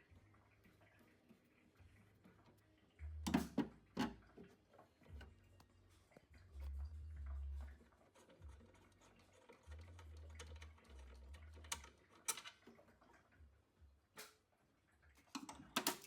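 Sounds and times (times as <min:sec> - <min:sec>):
clicks and taps of tools: 0:03.3 - 0:04.2, 0:15.3 - 0:16.0.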